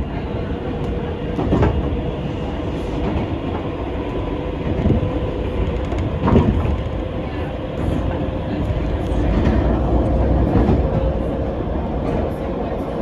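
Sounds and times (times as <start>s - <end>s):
train wheels rumbling on rails: 0.0s - 13.0s
track clunks: 2.7s - 7.1s, 7.7s - 13.0s.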